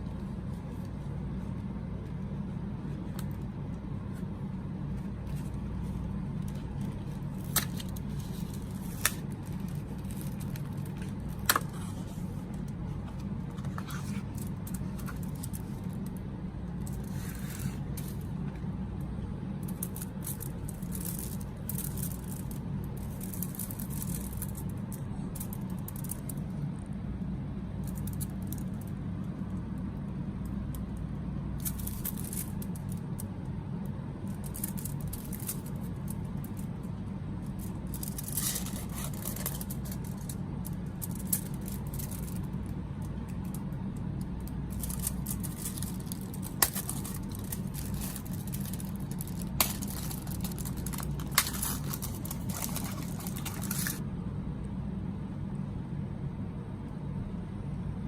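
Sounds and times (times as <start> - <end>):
steady low hum: 0.0 - 58.0
plastic packaging crinkling: 5.1 - 16.2, 34.3 - 36.7, 37.4 - 42.6, 44.4 - 54.0.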